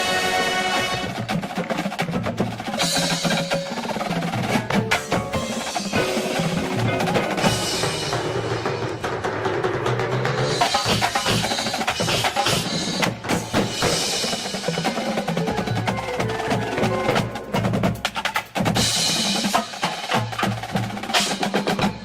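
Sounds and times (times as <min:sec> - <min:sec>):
snare and bass drums: 0:00.0 - 0:22.0
mallet percussion: 0:02.4 - 0:12.2, 0:13.5 - 0:20.5
ringing bell-like tones: 0:02.7 - 0:09.0, 0:15.4 - 0:17.9.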